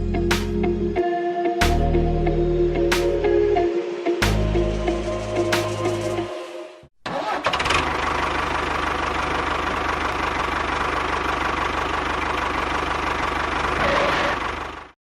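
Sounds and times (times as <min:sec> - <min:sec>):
small engine idling: 0:07.3 - 0:15.0.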